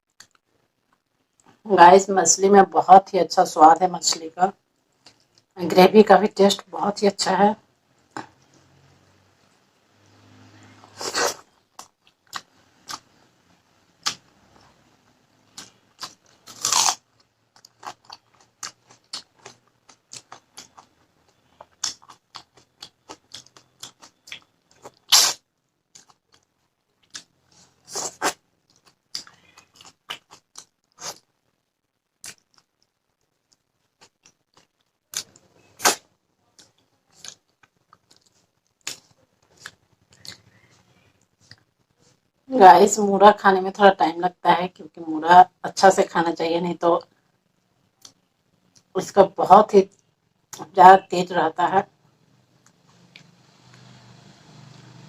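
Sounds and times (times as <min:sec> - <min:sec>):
chewing and mouth clicks: 0:04.9 - 0:05.5, 0:17.6 - 0:25.3, 0:25.9 - 0:27.3, 0:28.0 - 0:31.3, 0:32.2 - 0:36.0, 0:36.6 - 0:41.8
loud crunches: 0:15.6 - 0:17.0.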